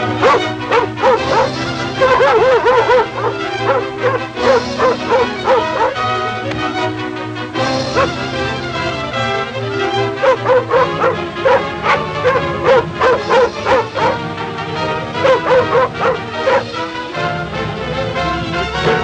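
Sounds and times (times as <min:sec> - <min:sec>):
orchestral film music: 0:00.0 - 0:19.0
dog yipping and whining: 0:00.2 - 0:06.1, 0:07.9 - 0:08.2, 0:10.2 - 0:14.2, 0:15.2 - 0:16.7.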